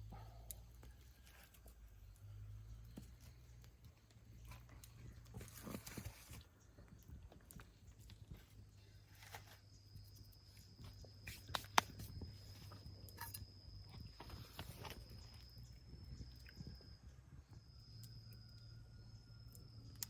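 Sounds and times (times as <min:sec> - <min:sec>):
low hum: 0:00.0 - 0:20.0
faint clicks and crackles: 0:00.2 - 0:18.8
high insect trill: 0:08.8 - 0:20.0.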